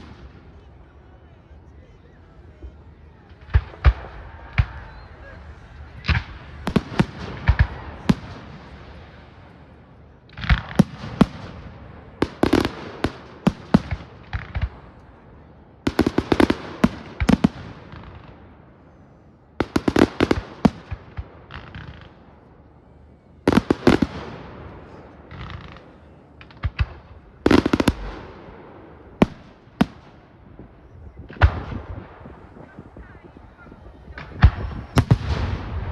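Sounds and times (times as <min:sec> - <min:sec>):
fireworks bangs: 0:00.0 - 0:01.5, 0:02.4 - 0:18.9, 0:19.5 - 0:35.9
echoing rumble: 0:02.7 - 0:35.9.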